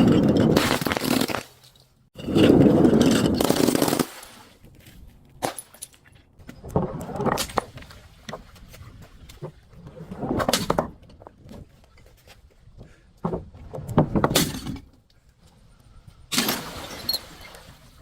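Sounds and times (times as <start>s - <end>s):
glass being crushed: 0.2s - 1.6s.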